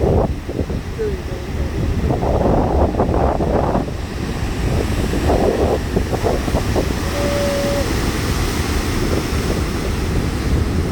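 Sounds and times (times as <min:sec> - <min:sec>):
wind buffeting microphone: 0:00.0 - 0:10.9
brief steady tone: 0:06.9 - 0:08.1.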